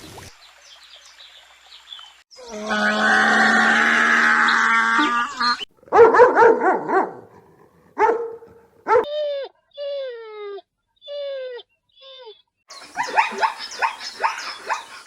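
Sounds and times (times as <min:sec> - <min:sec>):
dog yipping and barking: 0:05.9 - 0:07.2, 0:08.0 - 0:10.6, 0:11.2 - 0:15.0
dog whining: 0:08.9 - 0:12.5.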